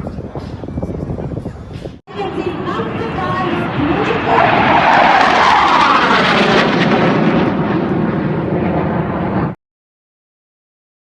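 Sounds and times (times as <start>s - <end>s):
aircraft flying low past: 2.1s - 9.6s.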